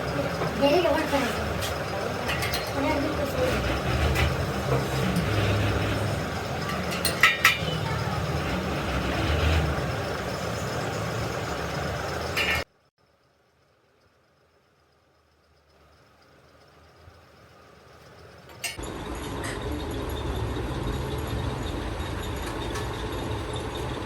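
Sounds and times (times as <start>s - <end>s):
vehicle engine rumbling: 0.0s - 12.8s, 15.8s - 24.0s.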